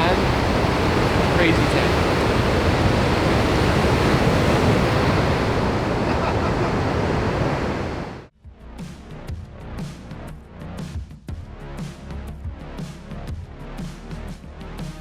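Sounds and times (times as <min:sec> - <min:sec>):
ocean surf rushing: 0:00.0 - 0:08.3
music with a regular beat: 0:08.4 - 0:15.0.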